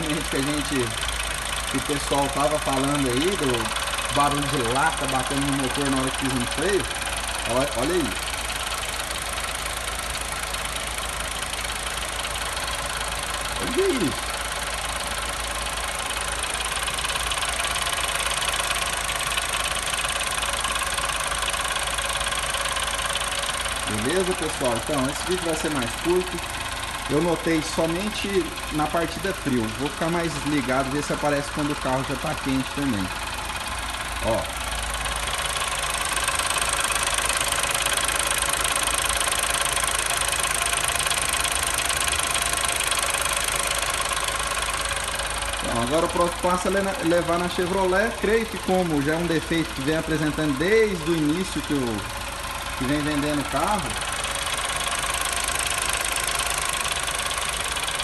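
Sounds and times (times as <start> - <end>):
car engine idling: 0.0 - 58.0
fast metallic rattle: 0.0 - 58.0.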